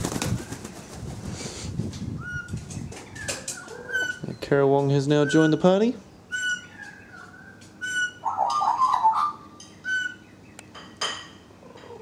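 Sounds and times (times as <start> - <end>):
birds whistling: 2.2 - 10.8.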